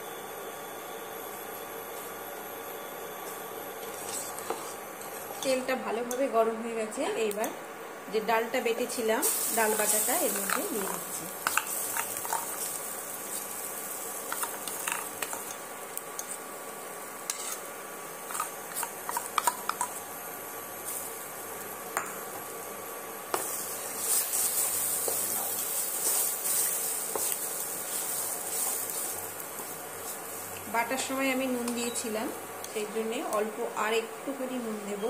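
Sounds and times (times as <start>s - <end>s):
wooden spatula scraping a pan: 3.8s - 5.5s, 17.3s - 17.7s
paste sizzling in hot oil: 9.2s - 33.0s.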